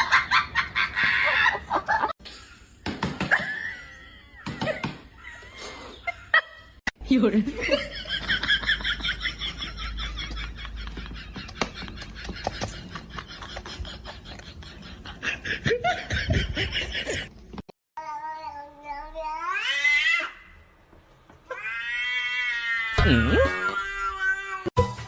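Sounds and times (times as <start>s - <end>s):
cat yowling: 21.6s - 24.7s.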